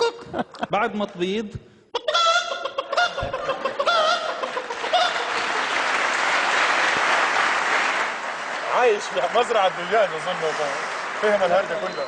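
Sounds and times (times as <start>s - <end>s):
audience applause: 3.4s - 12.0s.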